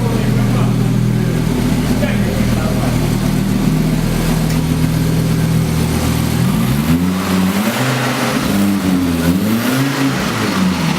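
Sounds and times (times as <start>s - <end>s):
car engine idling and revving: 0.0s - 10.9s.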